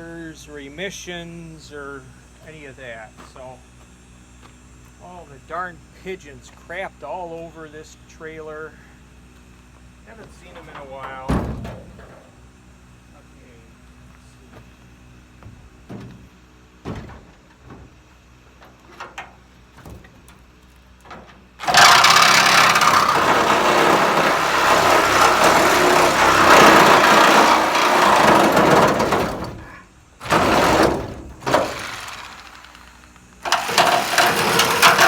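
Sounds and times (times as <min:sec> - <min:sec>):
power tool cutting sheet metal: 0:21.6 - 0:29.6, 0:30.2 - 0:32.8, 0:33.4 - 0:35.0.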